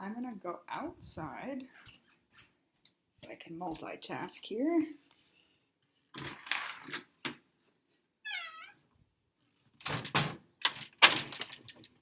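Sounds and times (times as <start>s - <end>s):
house cat meowing: 8.3s - 8.8s.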